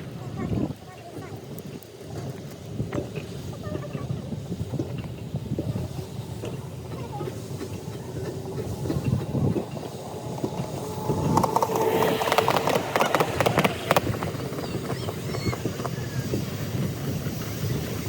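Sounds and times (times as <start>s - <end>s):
train wheels clattering: 1.0s - 18.0s
steady tone: 6.7s - 15.3s.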